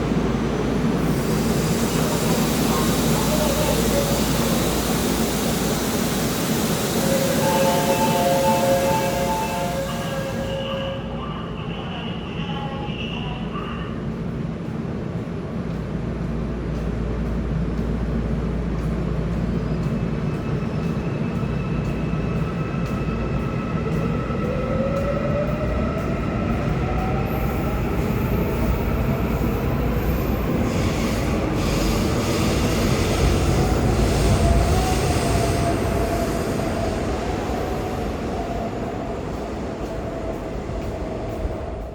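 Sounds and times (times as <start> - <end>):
wheels rumbling on rail: 0.0 - 41.9
electric train motor whine: 1.0 - 10.6.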